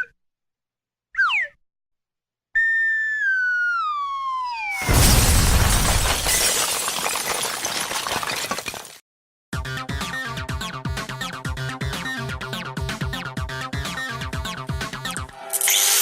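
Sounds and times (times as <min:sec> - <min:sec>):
falling whistle: 0:02.6 - 0:04.9
loud crash: 0:04.8 - 0:08.6.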